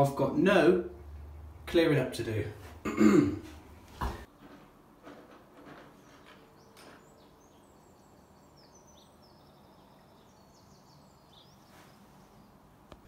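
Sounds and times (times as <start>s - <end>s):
faint bird chirps: 6.5s - 12.6s.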